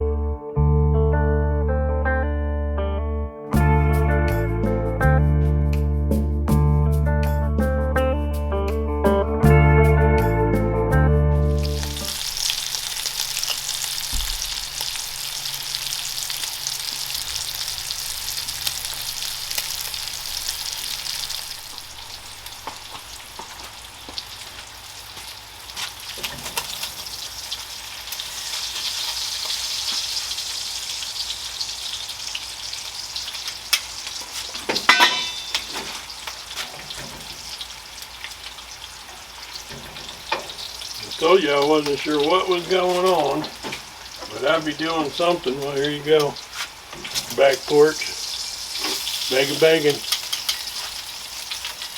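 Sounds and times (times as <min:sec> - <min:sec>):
bacon sizzling and popping: 0:11.5 - 0:51.9.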